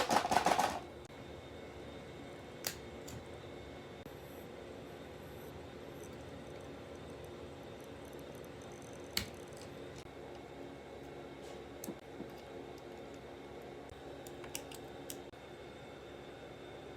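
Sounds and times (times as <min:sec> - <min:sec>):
steady low hum: 0:00.0 - 0:16.9
tools clicking on phone parts: 0:14.3 - 0:15.3.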